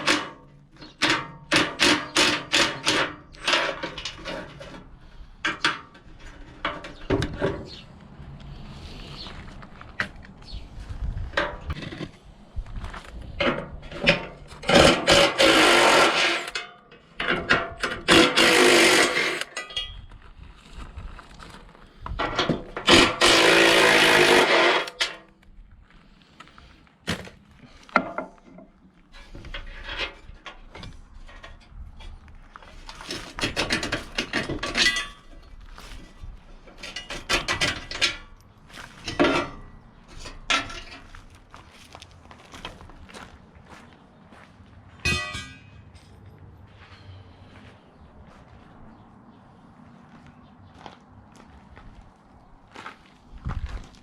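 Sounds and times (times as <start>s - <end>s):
metal parts knocking and clanking: 0.0s - 7.8s, 13.3s - 20.1s, 22.1s - 25.2s, 28.0s - 38.4s, 39.0s - 41.2s, 45.0s - 46.2s
power tool bursts: 14.7s - 16.6s, 18.1s - 19.5s, 22.8s - 25.2s.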